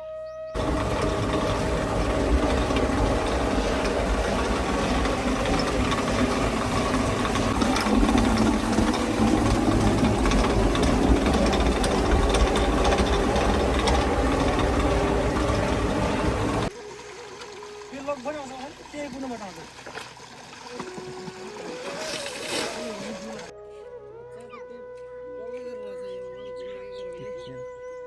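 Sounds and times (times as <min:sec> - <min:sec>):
engine-driven machine knocking: 0:00.6 - 0:16.7.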